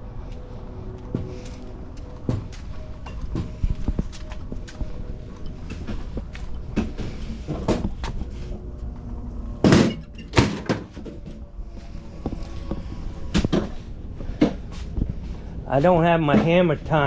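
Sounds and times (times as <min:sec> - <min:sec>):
steady low hum: 0:00.0 - 0:17.0
knocks and thuds: 0:09.6 - 0:11.2.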